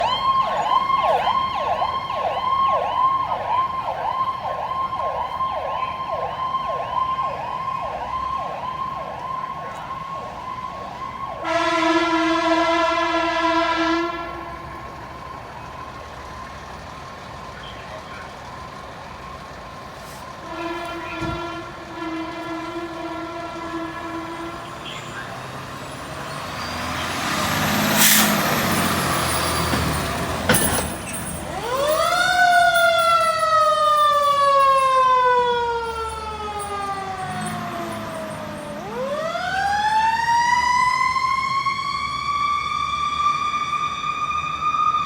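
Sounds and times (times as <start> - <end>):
siren yelping: 0.0 - 16.2, 20.5 - 45.0
air horn blast: 11.4 - 14.7, 20.4 - 25.2.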